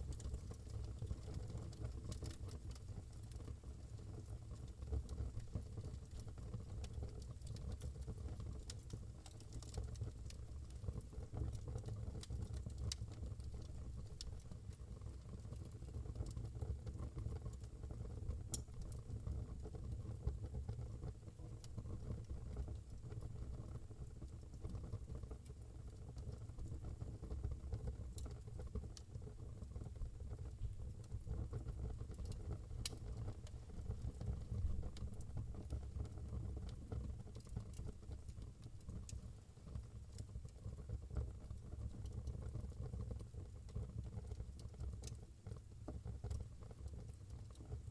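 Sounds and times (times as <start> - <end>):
firewood crackling and popping: 0.0 - 19.7, 30.2 - 47.9.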